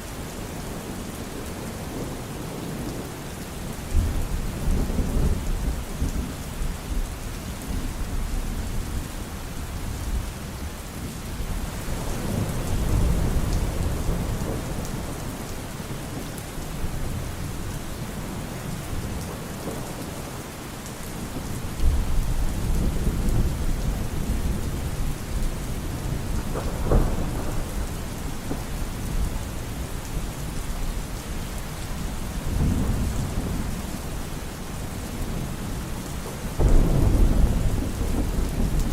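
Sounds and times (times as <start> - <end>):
steady rain falling: 0.0 - 38.9
thunder rumbling: 21.3 - 31.1, 36.5 - 38.9
sharp thunder clap: 36.6 - 38.9.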